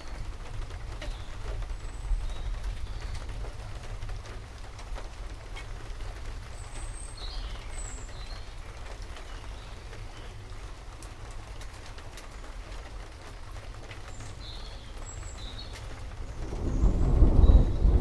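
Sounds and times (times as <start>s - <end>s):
steady rain: 0.0s - 18.0s
low steady rumble: 16.0s - 18.0s.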